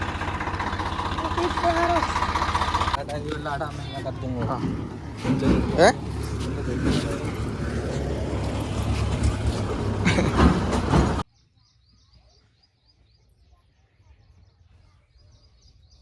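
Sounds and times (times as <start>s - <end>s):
tractor engine rumbling: 0.0s - 11.2s
faint bird chirps: 11.3s - 16.0s.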